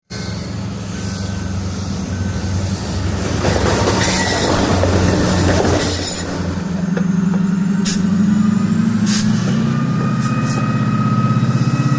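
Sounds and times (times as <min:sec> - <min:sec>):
diesel locomotive engine running: 0:00.0 - 0:11.9
high-pitched wheel squeal: 0:04.0 - 0:04.7.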